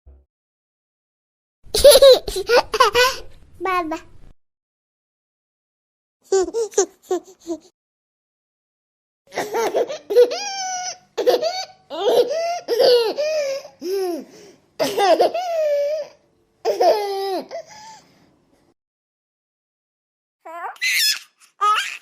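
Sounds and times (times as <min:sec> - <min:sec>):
baby laughing: 0:01.7 - 0:03.3, 0:06.3 - 0:07.7, 0:09.3 - 0:17.7, 0:20.5 - 0:22.0.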